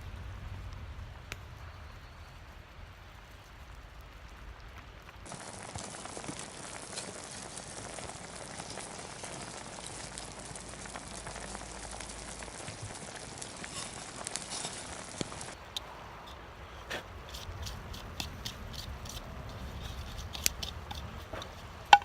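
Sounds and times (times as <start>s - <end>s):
wood fire crackling: 0.0s - 22.0s
pot sizzling: 5.2s - 22.0s.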